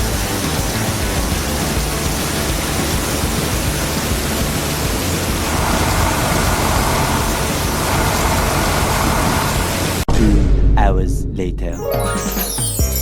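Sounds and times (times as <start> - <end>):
steady rushing noise: 0.2 - 10.1.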